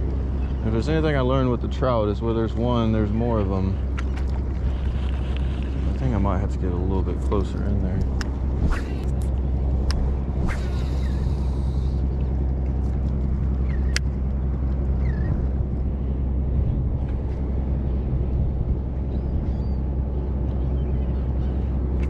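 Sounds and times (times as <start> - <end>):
boat motor droning: 0.0 - 22.0.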